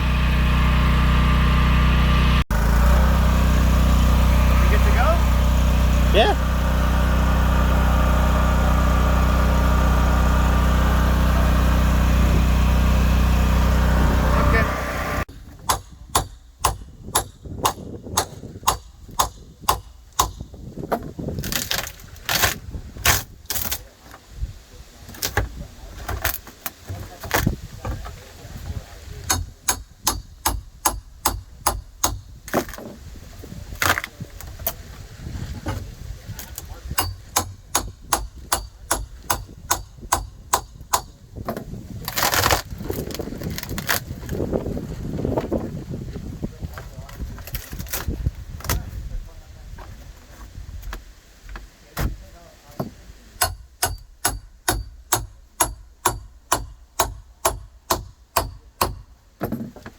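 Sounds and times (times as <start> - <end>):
hand tool chipping wood: 15.5 - 24.2, 25.1 - 27.6, 29.2 - 33.0, 33.7 - 34.8, 35.7 - 44.4, 52.8 - 59.9
wood scraping and tearing: 20.8 - 24.3, 25.0 - 29.7, 32.4 - 37.6, 41.4 - 45.9, 46.7 - 49.0.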